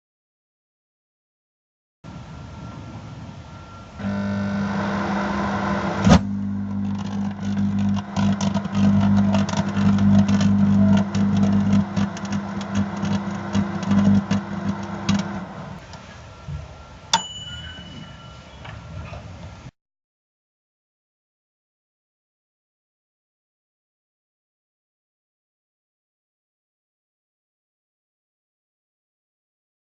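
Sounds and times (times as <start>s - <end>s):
microwave oven humming: 3.9s - 15.9s
crackling and snapping: 6.0s - 15.8s
high beep: 17.2s - 18.6s.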